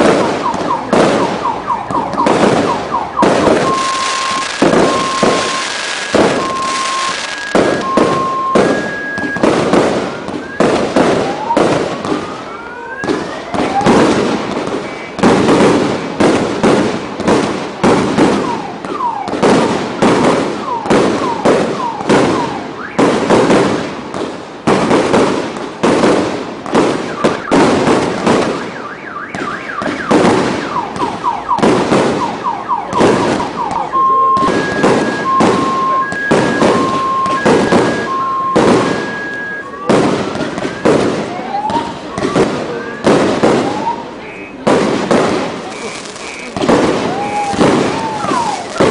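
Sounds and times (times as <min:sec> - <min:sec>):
whistling rockets: 0:00.0 - 0:23.9, 0:24.7 - 0:48.9
firework bursts and crackles: 0:00.0 - 0:48.9
two-tone alarm beeping: 0:00.3 - 0:09.5, 0:28.6 - 0:42.0.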